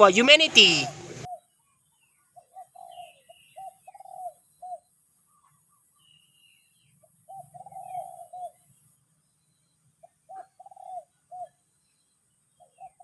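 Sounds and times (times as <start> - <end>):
small birds chirping: 0.0 - 13.0
dove cooing: 0.5 - 1.5, 2.4 - 4.9, 7.2 - 8.7, 10.0 - 11.6, 12.6 - 13.0.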